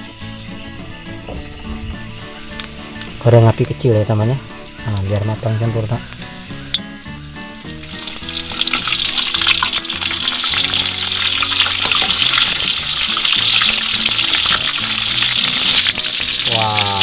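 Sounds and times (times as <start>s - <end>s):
fish deep-frying in hot oil: 4.1s - 17.0s.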